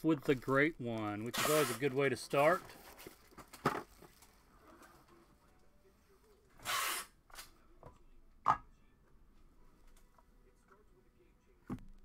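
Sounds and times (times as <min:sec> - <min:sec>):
cards and packaging rustling: 0:00.1 - 0:05.2.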